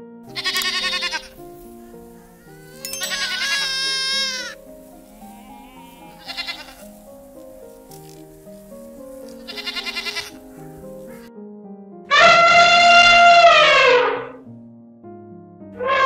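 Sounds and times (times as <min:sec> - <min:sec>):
background music with held notes: 0:00.0 - 0:16.0
goat kid bleating: 0:00.3 - 0:07.0, 0:09.2 - 0:10.5.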